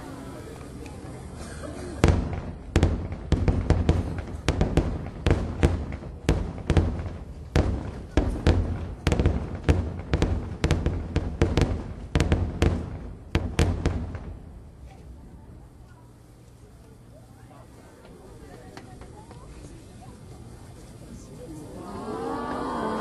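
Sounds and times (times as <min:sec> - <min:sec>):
firework shells bursting: 0:02.0 - 0:14.5.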